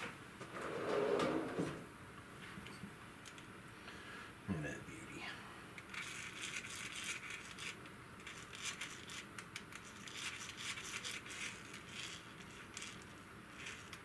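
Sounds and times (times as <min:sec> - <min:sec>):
small parts clicking and rattling: 0:05.8 - 0:14.0.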